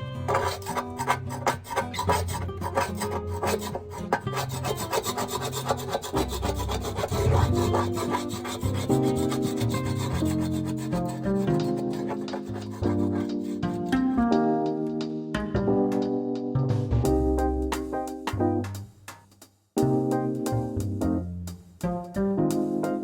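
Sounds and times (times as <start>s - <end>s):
plucked-string background music: 0.0s - 18.9s, 19.8s - 23.0s
sandpaper rubbing on wood: 0.2s - 13.8s.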